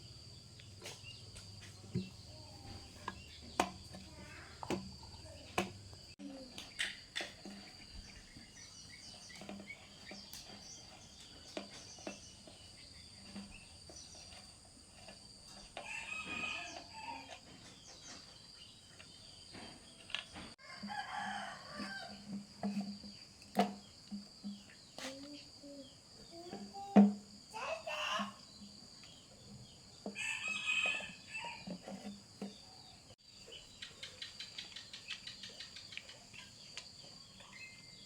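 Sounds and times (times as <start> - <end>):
rooster crowing: 15.8 - 17.3, 20.6 - 22.3, 30.2 - 31.7.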